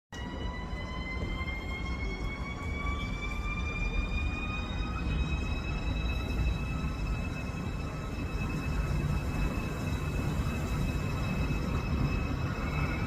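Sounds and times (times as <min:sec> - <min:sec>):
electric train drive whining: 0:00.2 - 0:13.0.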